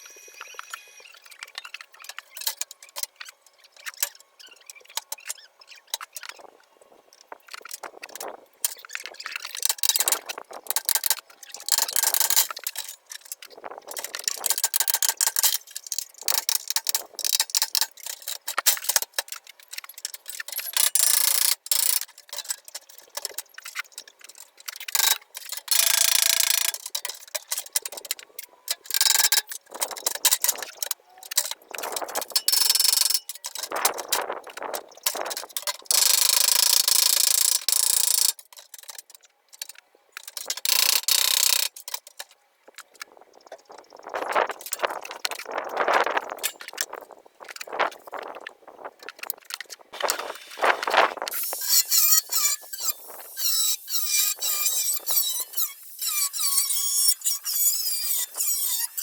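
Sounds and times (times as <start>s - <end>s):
rasping scraping bursts: 50.0s - 59.0s.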